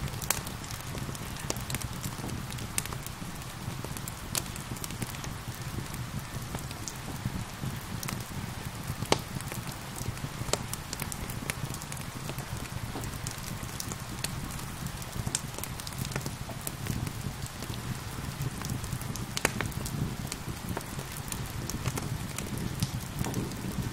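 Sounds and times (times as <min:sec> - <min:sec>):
rain patter: 0:00.0 - 0:23.9
wood fire crackling and popping: 0:00.0 - 0:23.9.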